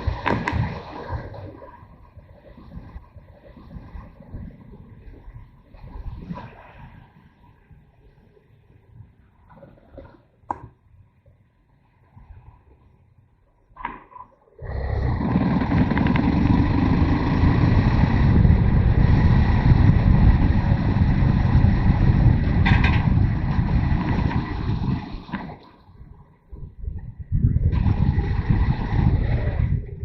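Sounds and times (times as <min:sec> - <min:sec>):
wind buffeting microphone: 0:00.0 - 0:08.0, 0:14.6 - 0:30.0
motorcycle engine running: 0:15.1 - 0:24.6.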